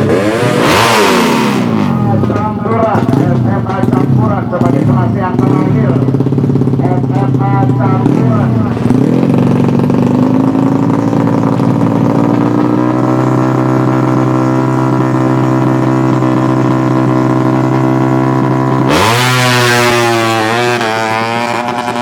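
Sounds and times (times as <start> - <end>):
motorcycle engine at high revs: 0.0 - 22.0.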